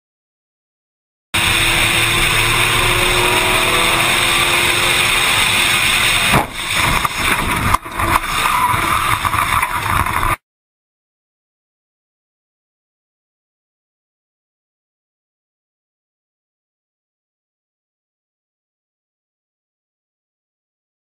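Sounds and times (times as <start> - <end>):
loud rushing noise: 1.4 - 10.3
car engine accelerating: 1.4 - 10.4
rough uneven noise: 1.4 - 10.4
heavy car crash impacts: 6.2 - 8.1.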